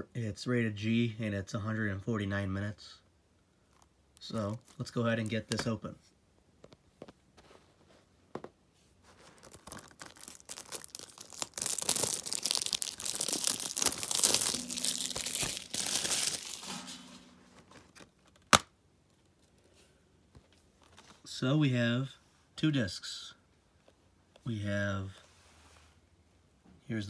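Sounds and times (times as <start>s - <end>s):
plastic wrapping tearing and crinkling: 9.2s - 17.2s
plastic case snapping open: 18.2s - 18.7s.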